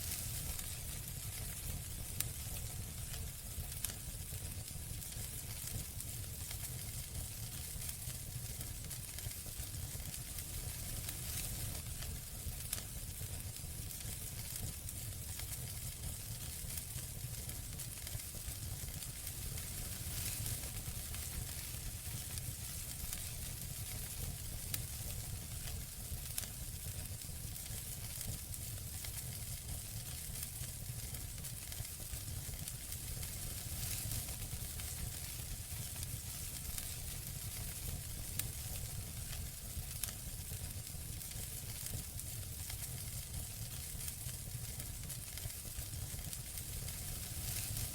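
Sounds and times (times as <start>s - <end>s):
campfire crackling: 0.0s - 47.9s
low rumble of flames: 0.0s - 47.9s
burning wood popping: 46.1s - 47.9s.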